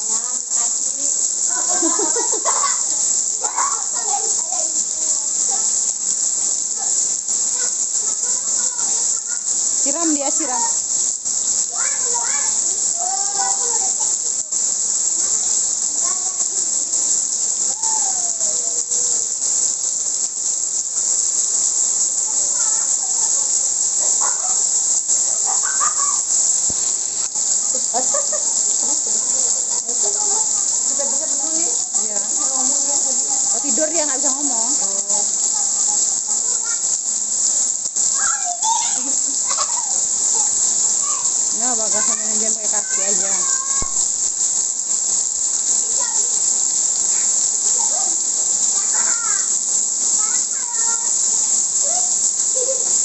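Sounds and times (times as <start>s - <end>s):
distant children's voices: 0.0s - 53.0s
heavy rain hissing: 0.0s - 53.0s
short faint calls: 22.2s - 53.0s.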